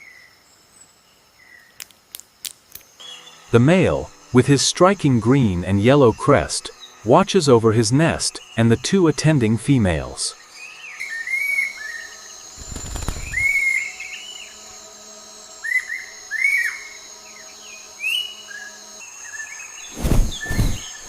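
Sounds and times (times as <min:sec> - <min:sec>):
high insect drone: 0:00.0 - 0:21.0
birds whistling: 0:10.6 - 0:14.6, 0:15.6 - 0:21.0.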